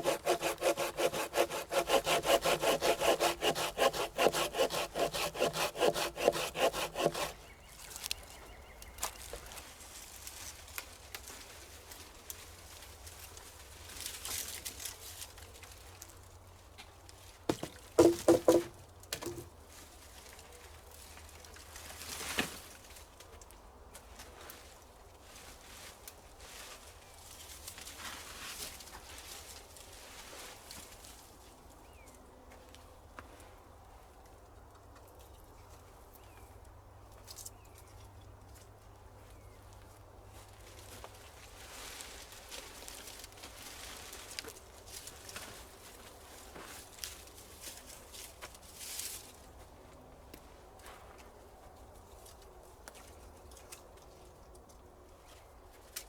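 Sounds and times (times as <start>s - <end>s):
footsteps rustling in dry leaves: 9.0s - 16.0s, 24.6s - 31.2s, 40.4s - 49.9s.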